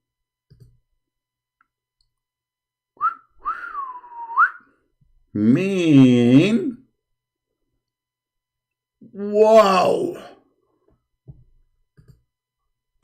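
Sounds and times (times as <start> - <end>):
person whistling: 3.0 - 4.7.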